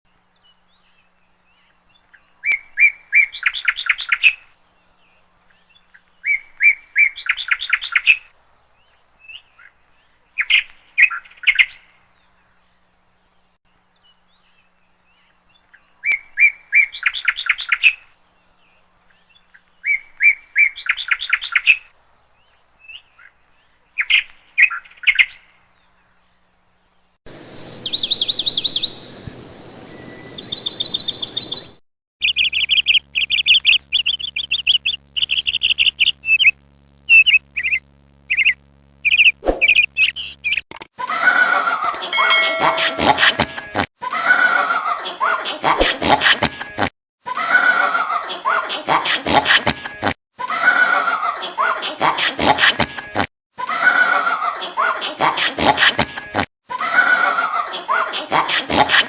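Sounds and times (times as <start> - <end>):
bird chirping call: 27.3 - 40.6, 41.9 - 43.7
songbird singing with trill: 27.3 - 40.6.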